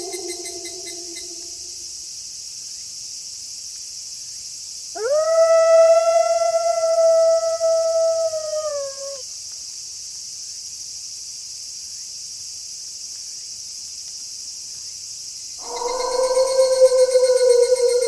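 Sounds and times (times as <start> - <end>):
wolf howling: 0.0 - 1.8, 5.0 - 9.2, 15.6 - 18.0
crickets chirping: 0.0 - 18.0.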